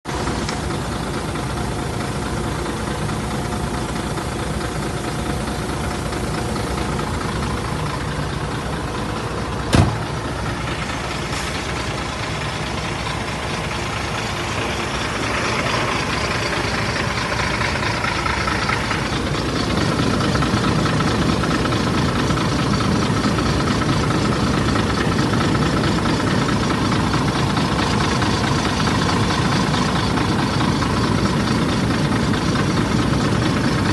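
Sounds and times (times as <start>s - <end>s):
diesel truck engine clattering: 0.0s - 33.9s
sharp knock: 9.7s - 10.1s.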